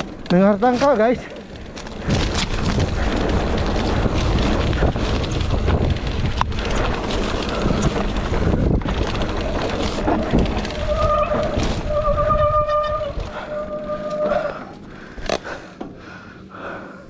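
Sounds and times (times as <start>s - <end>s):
mountain bike clattering on trail: 0.0s - 16.2s
wind buffeting microphone: 1.5s - 15.0s.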